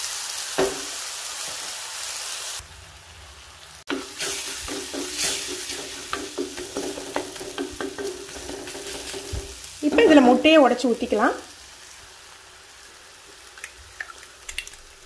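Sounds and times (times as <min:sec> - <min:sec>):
vegetables sizzling in oil: 0:00.0 - 0:15.0
wooden spatula scraping pot: 0:03.9 - 0:10.4.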